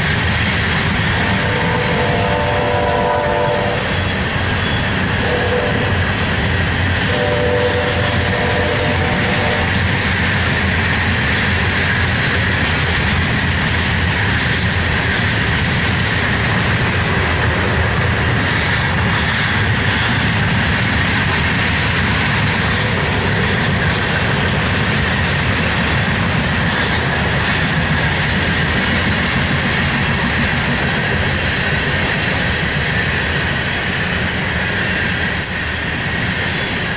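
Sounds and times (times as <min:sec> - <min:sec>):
train cars rumbling on rails: 0:00.0 - 0:36.9
train horn chord: 0:01.2 - 0:03.9, 0:05.2 - 0:06.0, 0:07.1 - 0:09.8.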